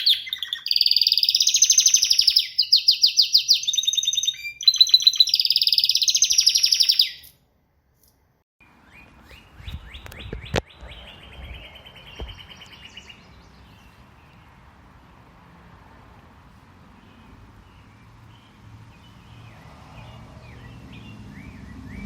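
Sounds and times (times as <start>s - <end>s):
bird chirping: 0.0s - 7.4s, 8.0s - 15.4s, 16.8s - 22.0s
songbird fast trill: 0.0s - 7.4s
background noise: 0.0s - 22.0s.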